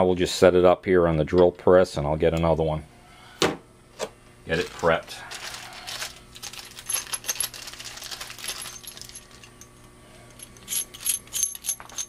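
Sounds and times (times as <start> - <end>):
small metal parts clinking: 5.4 - 12.0.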